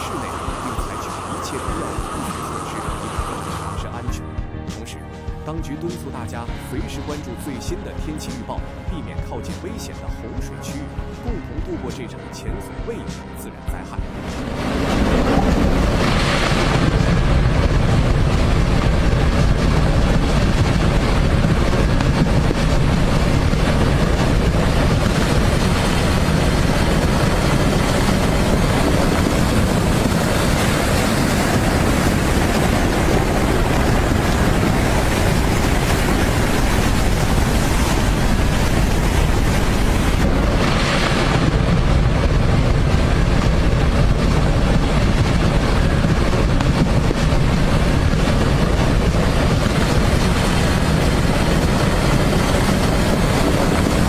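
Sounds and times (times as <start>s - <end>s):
floodwater roaring: 0.0s - 5.4s, 13.5s - 54.0s
wind buffeting microphone: 14.4s - 54.0s.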